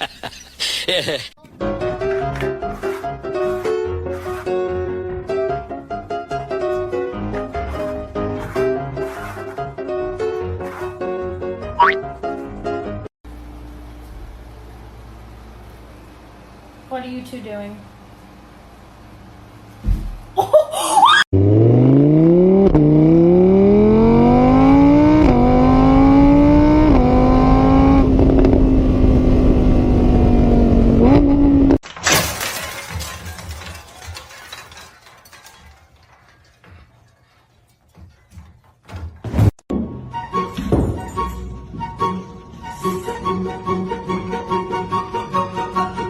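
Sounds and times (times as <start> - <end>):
engine revving through gears: 21.4 - 31.8.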